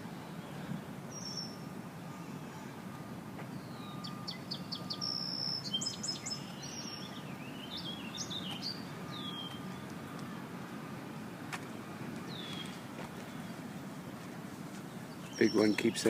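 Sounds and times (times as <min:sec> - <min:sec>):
low outdoor rumble: 0:00.0 - 0:16.0
songbird singing: 0:00.0 - 0:16.0.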